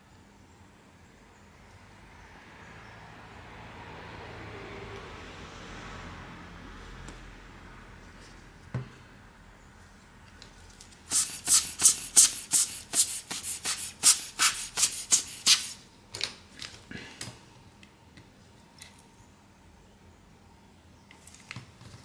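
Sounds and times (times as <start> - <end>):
scratchy rubbing strokes: 11.1 - 15.8.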